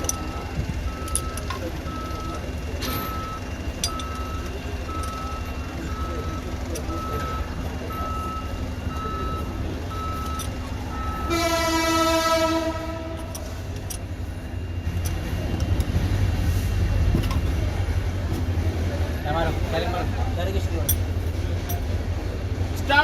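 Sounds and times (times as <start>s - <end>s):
reversing alarm beeping: 0.0s - 15.8s
low engine rumble: 0.0s - 23.0s
vehicle horn: 11.2s - 13.4s.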